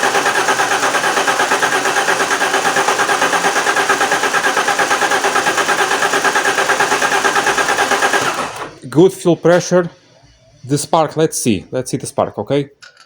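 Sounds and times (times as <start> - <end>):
engine cranking on starter motor: 0.0 - 8.9.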